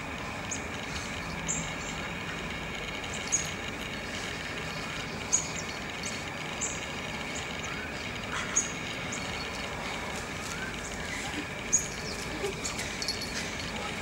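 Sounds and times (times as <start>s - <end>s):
insects chorus: 0.2s - 14.0s.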